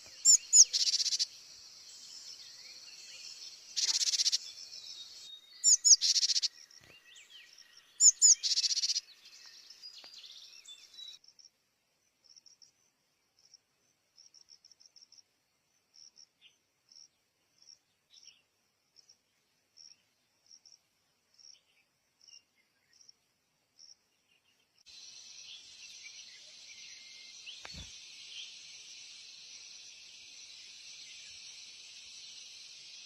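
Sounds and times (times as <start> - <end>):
high insect buzz: 0.0 - 4.5, 24.9 - 33.0
brief knock: 27.6 - 27.9.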